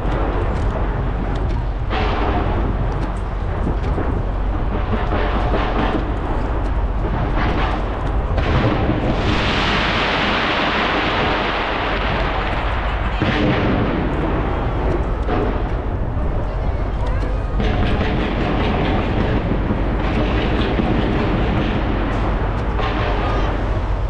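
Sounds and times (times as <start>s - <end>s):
fireworks rapid bangs: 0.0s - 16.6s, 17.2s - 24.0s
steady low rumble: 0.0s - 24.0s.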